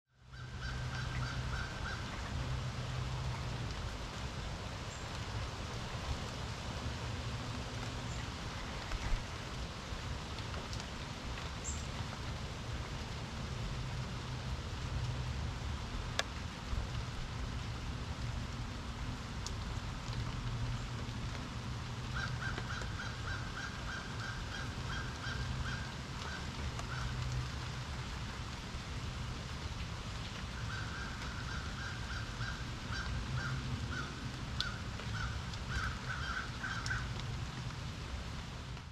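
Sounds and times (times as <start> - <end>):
rain hiss: 0.2 - 38.9.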